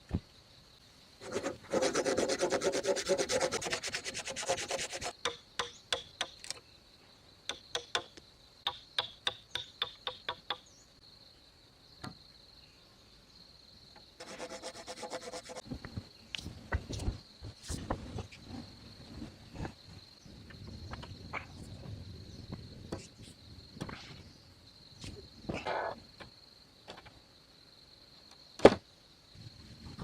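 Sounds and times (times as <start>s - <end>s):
high insect trill: 0.0s - 30.0s
hand scraping wood: 1.2s - 5.2s, 14.2s - 15.6s
rapid rubbing strokes: 1.2s - 5.2s, 14.2s - 15.6s.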